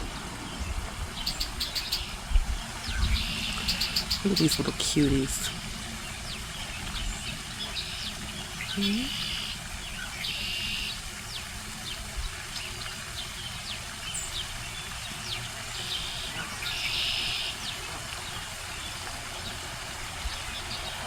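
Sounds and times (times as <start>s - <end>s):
goslings peeping: 3.0s - 5.5s.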